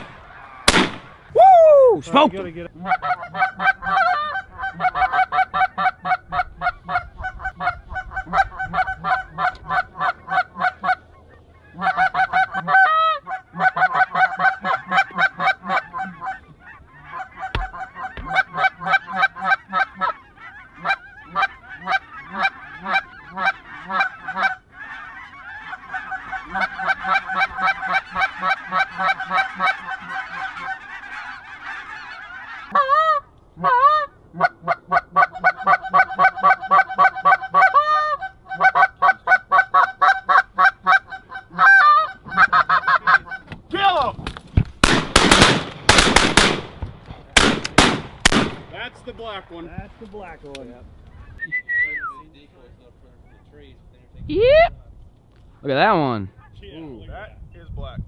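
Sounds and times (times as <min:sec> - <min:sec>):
goose honking: 0:00.0 - 0:01.2, 0:02.6 - 0:43.5.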